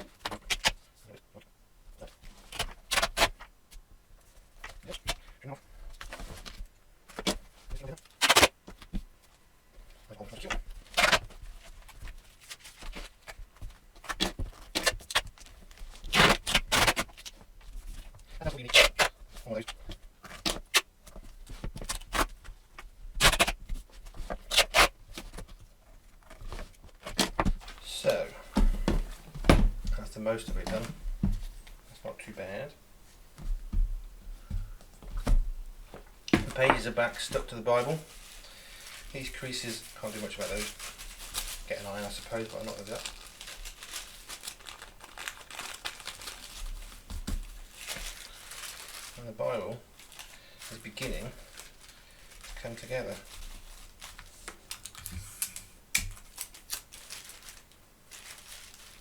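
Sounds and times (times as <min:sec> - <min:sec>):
adhesive tape ripping and scraping: 0:02.5 - 0:03.4, 0:08.0 - 0:08.6, 0:10.8 - 0:11.3, 0:14.0 - 0:17.4, 0:18.6 - 0:19.2, 0:23.2 - 0:23.6, 0:24.3 - 0:25.2
paper pages and tape crinkling: 0:05.9 - 0:32.6, 0:35.2 - 0:59.0.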